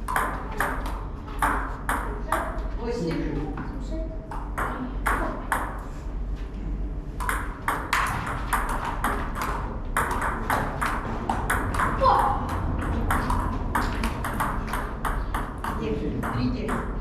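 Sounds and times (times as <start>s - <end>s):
table tennis ball clicking: 7.2s - 16.9s.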